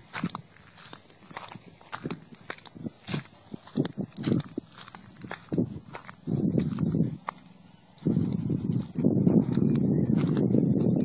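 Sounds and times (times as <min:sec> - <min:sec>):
footsteps scuffing and clicking: 0:00.0 - 0:11.0.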